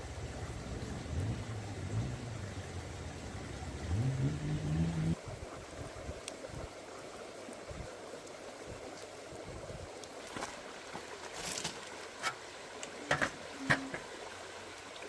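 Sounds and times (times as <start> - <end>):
low engine-like hum: 0.0 - 5.2
stream rushing: 0.0 - 15.0.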